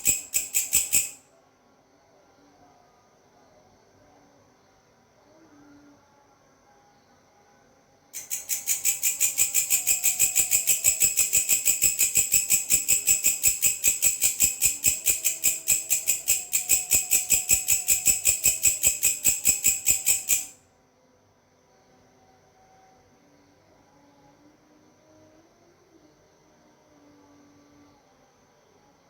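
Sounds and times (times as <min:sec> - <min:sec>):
grasshopper stridulating: 0:00.0 - 0:01.2, 0:08.2 - 0:20.6.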